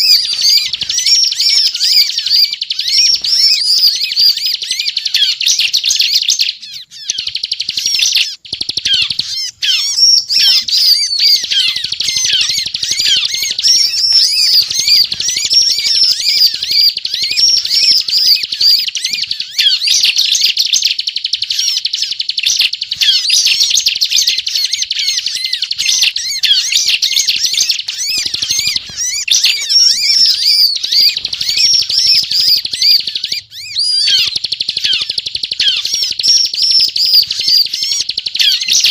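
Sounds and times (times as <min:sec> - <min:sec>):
bird chattering song: 0:00.0 - 0:38.9.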